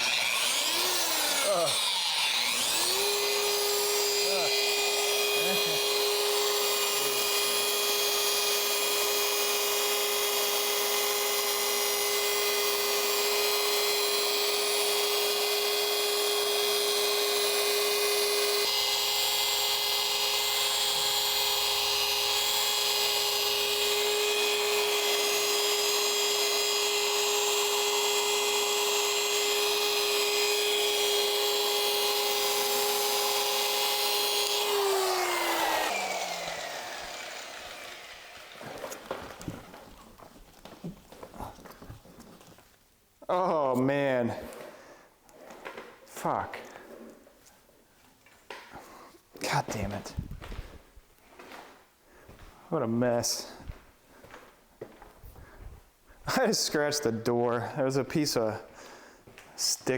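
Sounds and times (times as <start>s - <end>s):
electric polisher whining: 0.0s - 41.3s.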